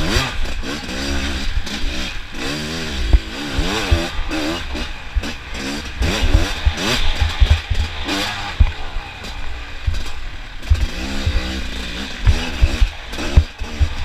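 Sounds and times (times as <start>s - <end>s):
dirt bike engines revving: 0.0s - 14.0s
short low thumps: 3.0s - 8.0s.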